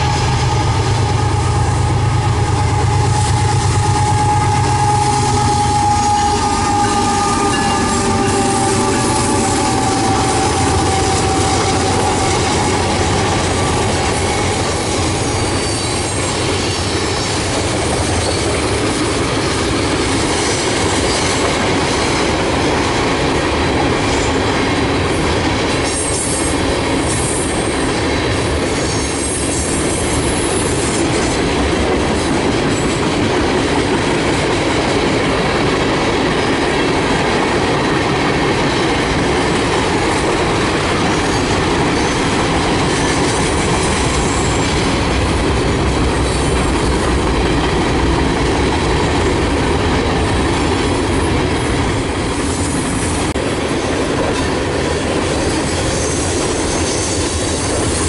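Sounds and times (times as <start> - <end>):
diesel locomotive engines rumbling: 0.0 - 58.0
train wheels clattering on rails: 0.0 - 58.0.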